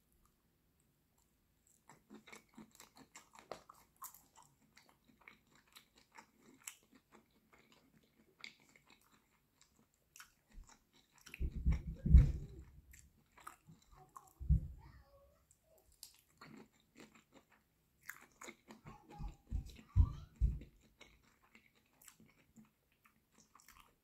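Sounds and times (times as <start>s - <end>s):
chewing mouth clicks: 1.6s - 12.3s, 15.9s - 20.0s, 20.6s - 24.0s
low thumping: 11.4s - 12.7s, 14.4s - 14.9s, 19.2s - 20.7s.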